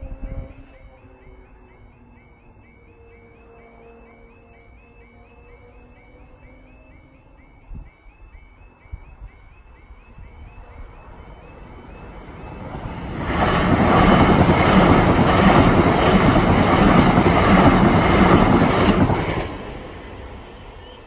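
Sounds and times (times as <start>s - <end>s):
level crossing alarm warbling: 0.0s - 13.2s
train wheels clattering: 13.0s - 20.0s.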